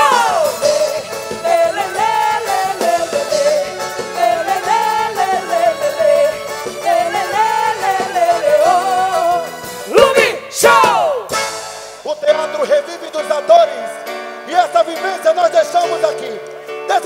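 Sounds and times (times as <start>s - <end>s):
live band playing folk dance music: 0.0s - 17.0s.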